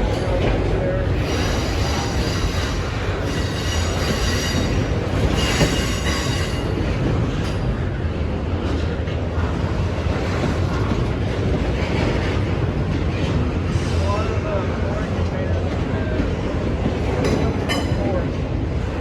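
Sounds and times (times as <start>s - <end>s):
freight train rumbling past: 0.0s - 19.0s
high wheel squeal: 1.2s - 6.7s.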